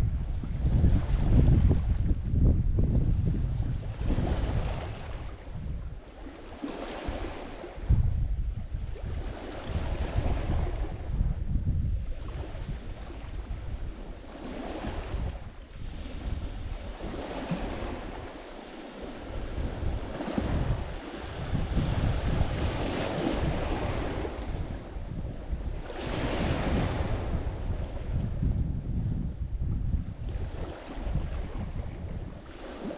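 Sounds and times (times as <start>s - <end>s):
wind buffeting microphone: 0.0s - 32.9s
waves breaking on rocky shore: 14.3s - 25.2s.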